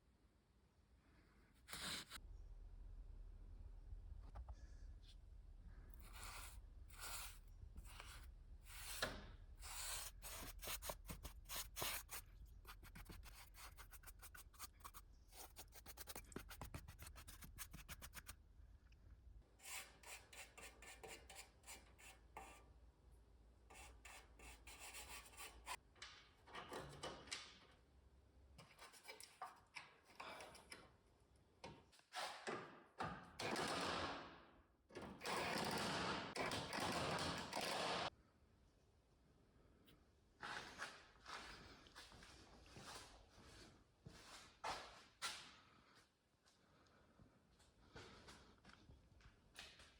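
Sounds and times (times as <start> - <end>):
scraping and rubbing strokes: 5.9 - 18.4.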